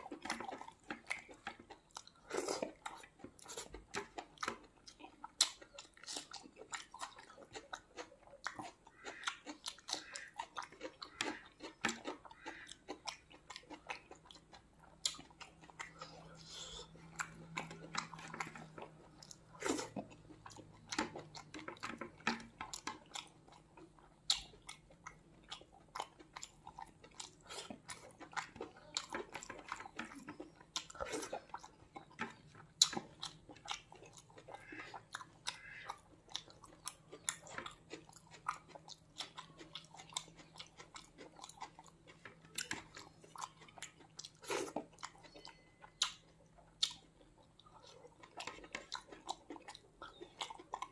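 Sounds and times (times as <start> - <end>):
chewing and mouth clicks: 0.0 - 50.9.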